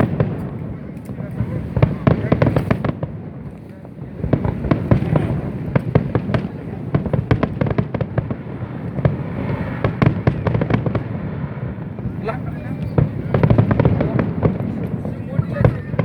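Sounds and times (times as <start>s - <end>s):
fireworks cracks and bangs: 0.0s - 16.0s.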